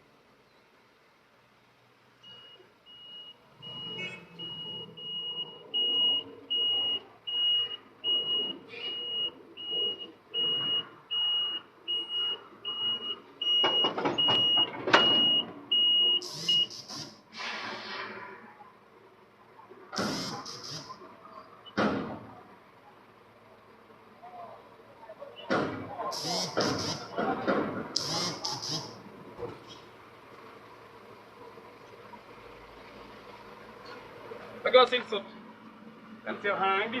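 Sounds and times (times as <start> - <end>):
truck engine: 0.0 - 37.0
truck reversing alarm beeping: 2.2 - 17.3, 19.9 - 21.8, 25.2 - 27.4, 28.0 - 29.2
metal clunks: 25.4 - 28.1.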